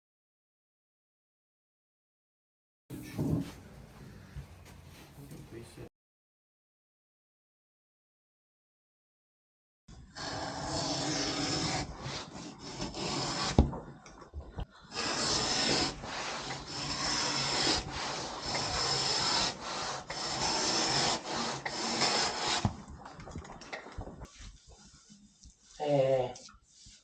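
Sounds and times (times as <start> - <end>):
tool rasping a board: 10.1 - 13.8, 14.9 - 22.8.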